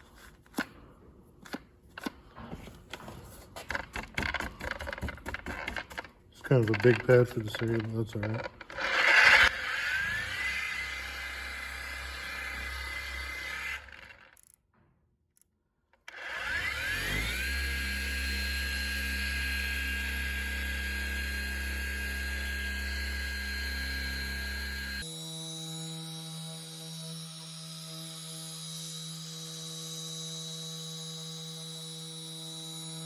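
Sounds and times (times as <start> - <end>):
polisher motor whining: 5.1 - 14.4, 16.1 - 33.0.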